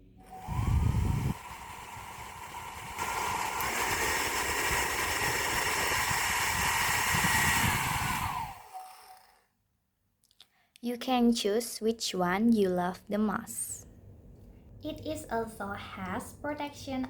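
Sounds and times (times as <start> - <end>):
hair dryer motor whine: 0.0 - 9.3.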